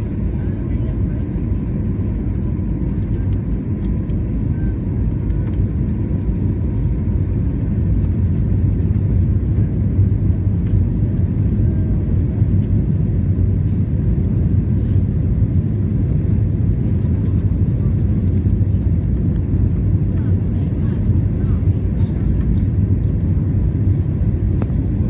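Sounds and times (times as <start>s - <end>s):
jet engines rumbling: 0.0s - 25.0s
rushing air in cabin: 14.6s - 15.3s.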